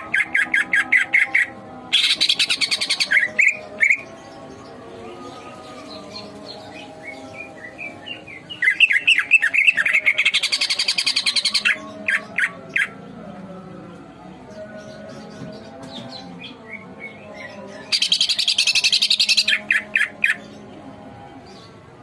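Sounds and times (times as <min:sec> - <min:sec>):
bird chirping and trilling: 0:00.0 - 0:04.5, 0:05.5 - 0:13.0.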